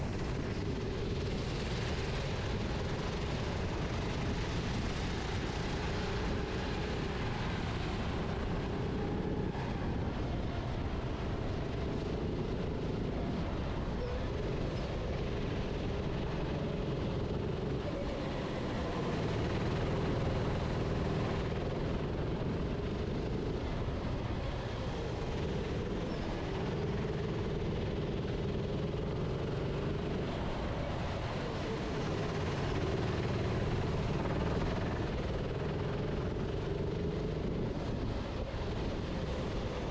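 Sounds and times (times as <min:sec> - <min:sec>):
racing kart engine: 0:00.0 - 0:39.9
steady rushing noise: 0:00.0 - 0:39.9.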